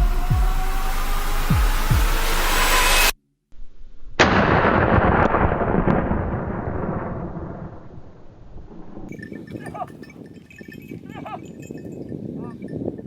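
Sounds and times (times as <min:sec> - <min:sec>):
heartbeat-style music: 0:00.0 - 0:03.1
loud boom: 0:04.2 - 0:09.1.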